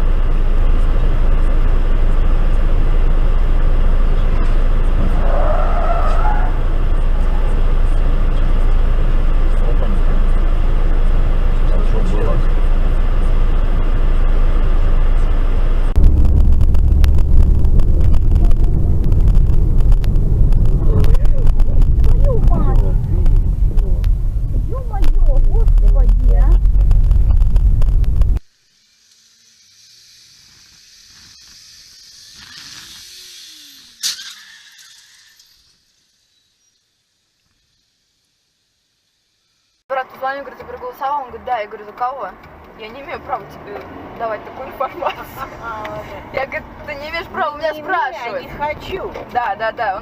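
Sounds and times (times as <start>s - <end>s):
car road noise: 0.0s - 28.6s, 39.4s - 50.0s
vehicle noise squealing: 0.7s - 28.4s, 29.4s - 37.9s.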